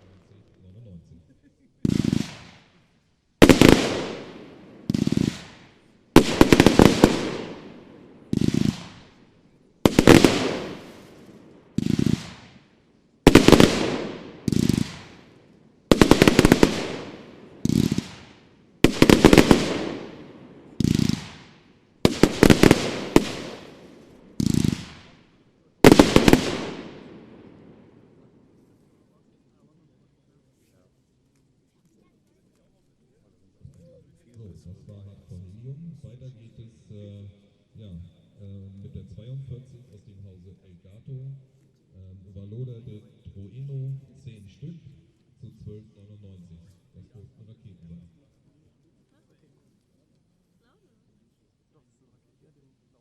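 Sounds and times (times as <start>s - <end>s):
firework crackling burst: 1.8s - 9.3s, 9.9s - 28.0s.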